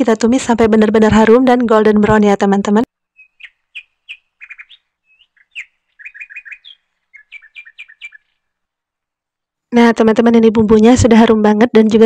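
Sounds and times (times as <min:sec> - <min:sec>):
small bird chirping: 0:03.0 - 0:08.7.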